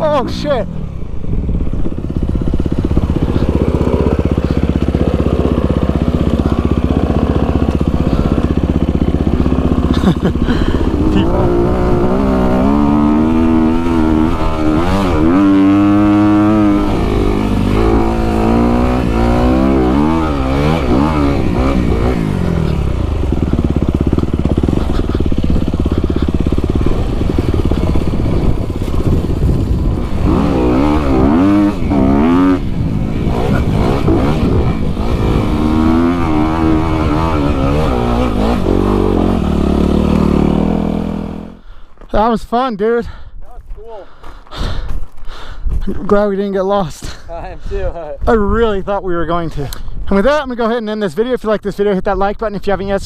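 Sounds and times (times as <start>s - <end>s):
dirt bike engine revving: 0.0s - 41.7s.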